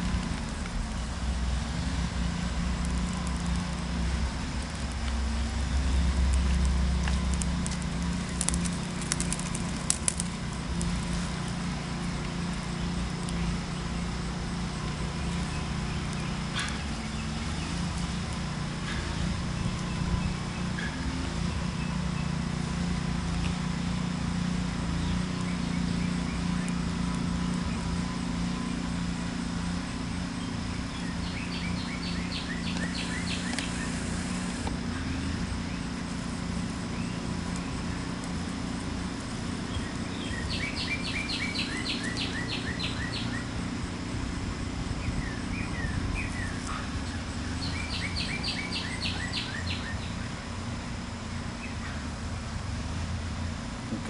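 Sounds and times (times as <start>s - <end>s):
steady low rumble: 0.0s - 54.0s
songbird singing high notes: 30.4s - 34.3s, 39.7s - 43.5s, 45.0s - 50.3s.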